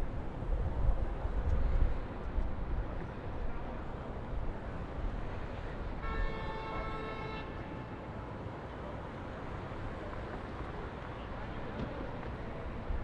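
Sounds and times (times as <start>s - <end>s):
city traffic rumble: 0.0s - 13.0s
car horn: 6.0s - 7.6s.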